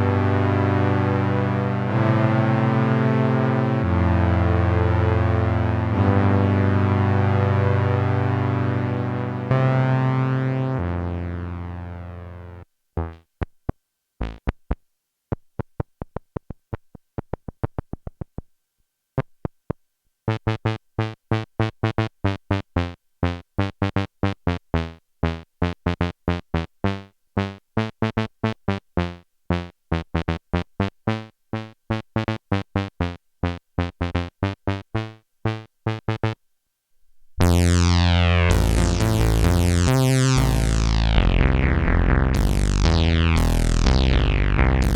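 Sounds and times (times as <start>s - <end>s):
synthesizer notes: 0.0s - 13.3s, 25.2s - 36.4s, 37.2s - 44.9s.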